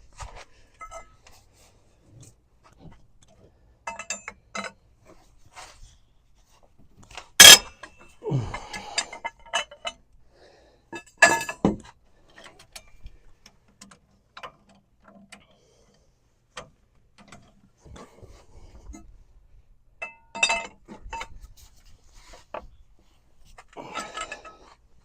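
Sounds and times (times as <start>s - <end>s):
metal scrape: 7.4s - 7.7s
metal tools clanking: 7.4s - 8.0s, 23.8s - 24.7s.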